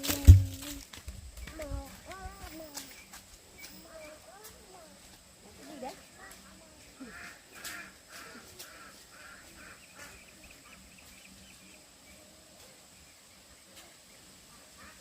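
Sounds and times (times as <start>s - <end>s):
birds harsh calls: 6.1s - 11.7s.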